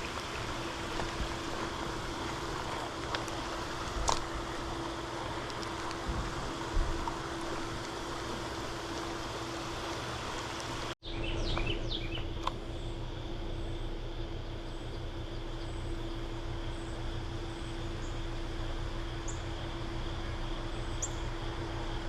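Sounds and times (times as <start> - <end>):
outdoor rushing noise: 0.0 - 11.0
low steady hum: 0.0 - 22.0.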